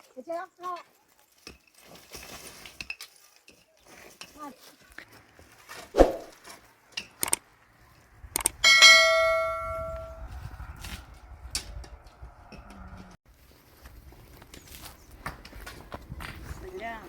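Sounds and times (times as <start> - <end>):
metal object ringing: 8.6 - 10.2.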